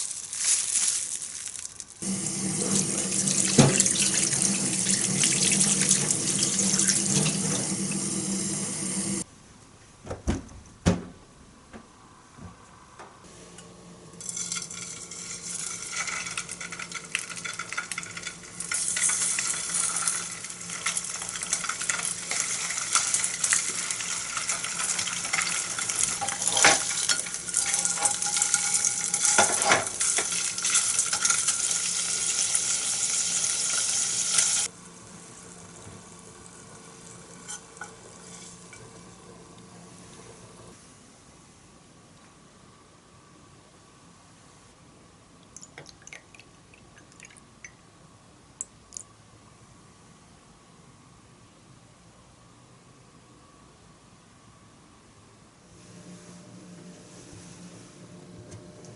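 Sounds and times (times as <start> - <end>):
food sizzling in hot fat: 0.0 - 9.2, 14.2 - 39.2.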